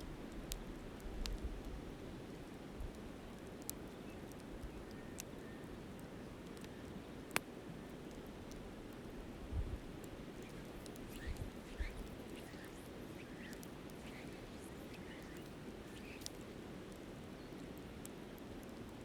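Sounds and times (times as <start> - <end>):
wind rumble on microphone: 9.4 - 16.7
flowing river water: 10.4 - 16.7.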